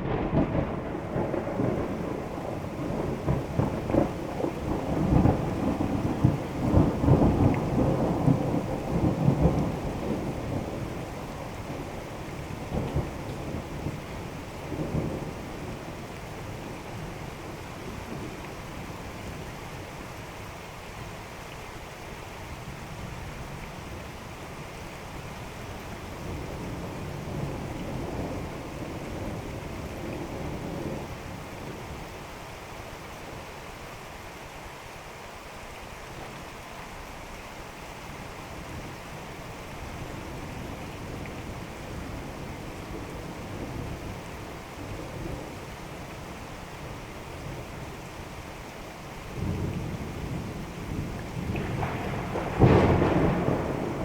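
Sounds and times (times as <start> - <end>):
thunder rumbling: 0.0 - 18.4, 49.2 - 54.0
steady rain: 0.0 - 54.0.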